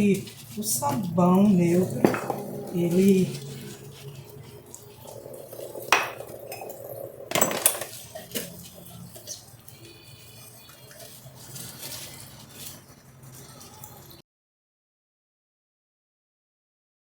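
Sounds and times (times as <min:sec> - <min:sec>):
dishes and cutlery clinking: 0:00.3 - 0:14.2.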